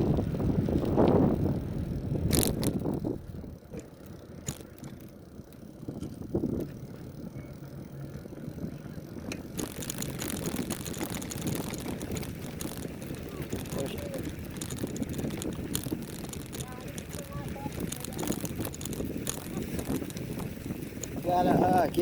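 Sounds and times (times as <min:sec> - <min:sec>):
wind on microphone: 0:00.0 - 0:03.6, 0:08.6 - 0:22.0
bicycle frame rattling and clicking: 0:00.0 - 0:22.0
bicycle tyre rumble on dirt: 0:00.0 - 0:22.0.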